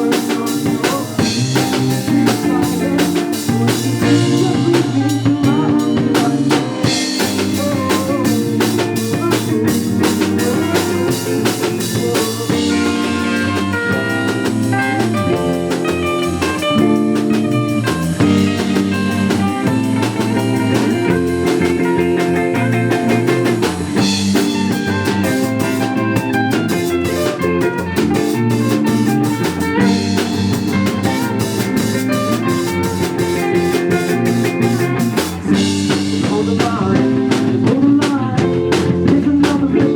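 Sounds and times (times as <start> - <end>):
drum kit playing: 0.0 - 39.9
guitar: 0.0 - 39.9.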